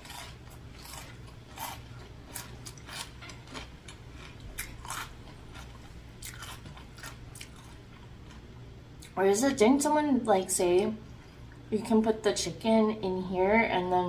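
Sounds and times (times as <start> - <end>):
person chewing crunchy food: 0.0 - 9.2
steady low hum: 0.0 - 14.0.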